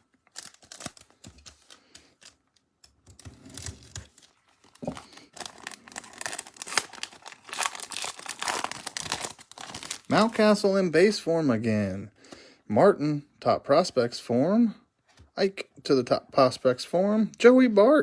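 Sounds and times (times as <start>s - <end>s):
card pack wrapper crinkling: 0.0s - 10.7s.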